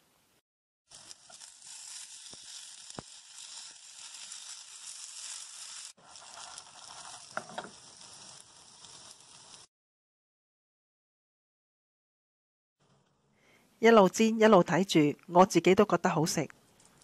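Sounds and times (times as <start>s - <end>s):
cake slices sizzling in oil: 0.9s - 9.7s.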